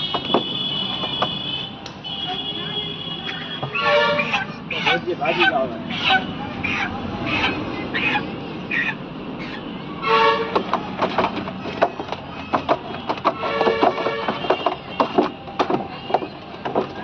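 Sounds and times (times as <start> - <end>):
vehicle horn tooting: 0.0 - 4.4, 9.8 - 10.7, 12.8 - 16.4
voices: 0.3 - 17.0.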